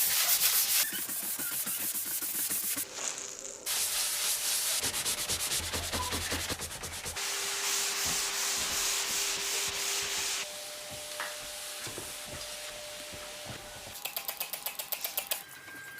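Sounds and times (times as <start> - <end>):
scrubbing on a surface: 0.0 - 10.4.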